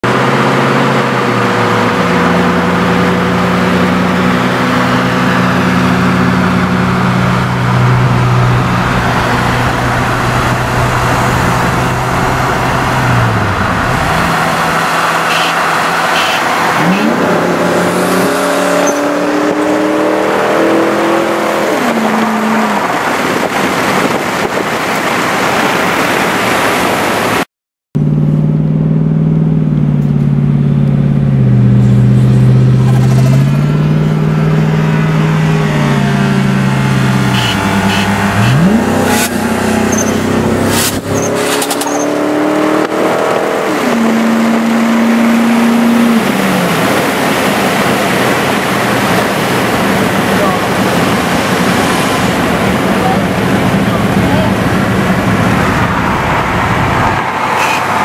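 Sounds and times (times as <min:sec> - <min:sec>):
car engine accelerating: 0:00.0 - 0:27.4, 0:28.0 - 0:58.0
road noise inside car: 0:00.0 - 0:27.4, 0:28.0 - 0:58.0.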